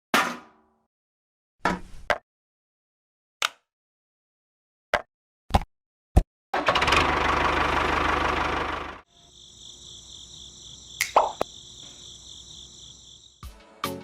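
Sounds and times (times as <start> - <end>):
small engine running: 6.6 - 9.3.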